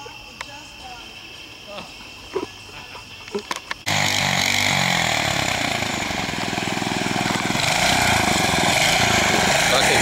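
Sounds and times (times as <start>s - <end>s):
mini bike engine running: 3.8s - 10.0s.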